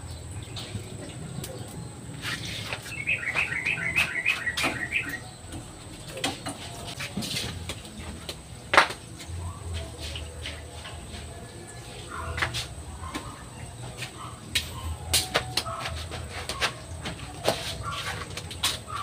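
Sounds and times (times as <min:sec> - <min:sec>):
bird chirping: 0:00.0 - 0:06.9.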